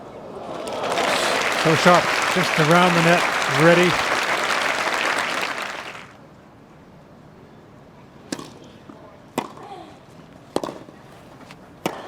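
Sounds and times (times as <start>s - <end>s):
applause: 0.0s - 6.2s.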